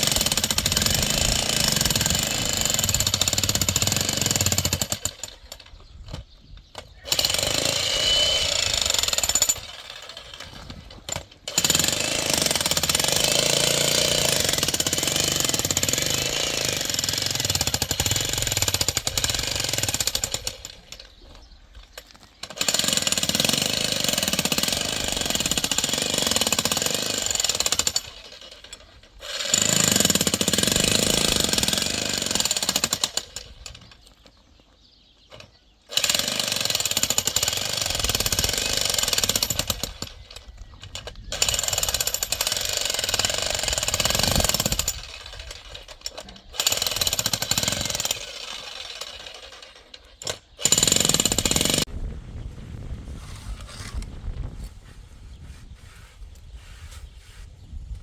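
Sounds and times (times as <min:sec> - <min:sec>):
jackhammer hammering: 0:00.0 - 0:05.6, 0:07.0 - 0:21.0, 0:22.4 - 0:33.6, 0:35.9 - 0:40.3, 0:41.3 - 0:51.9.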